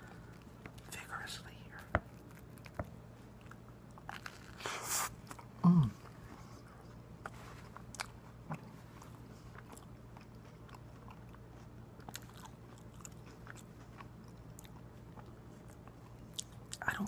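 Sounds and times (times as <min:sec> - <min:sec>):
person chewing a sandwich: 0:00.0 - 0:00.9, 0:01.7 - 0:17.0
faint steady hum: 0:00.0 - 0:17.0.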